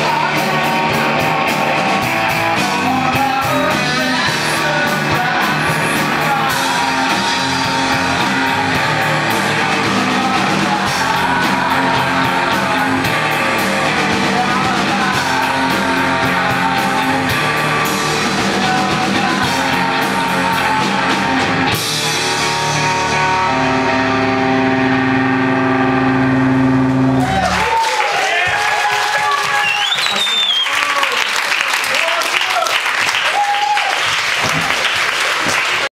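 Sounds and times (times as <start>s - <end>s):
person singing: 0.0s - 25.1s
electric guitar: 0.0s - 27.8s
drums: 0.0s - 35.9s
rock band playing: 0.0s - 35.9s.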